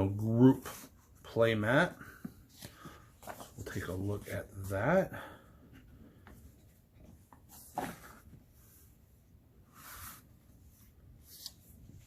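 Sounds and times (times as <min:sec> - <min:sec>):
soft paper rustle: 0:00.6 - 0:05.1
book pages turning: 0:02.0 - 0:04.8, 0:09.8 - 0:12.0.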